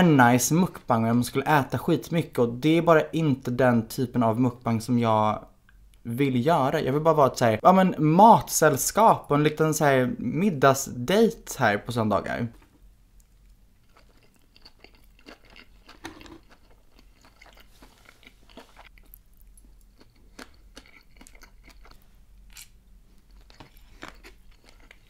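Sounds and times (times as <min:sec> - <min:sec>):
person chewing: 0:13.2 - 0:25.0.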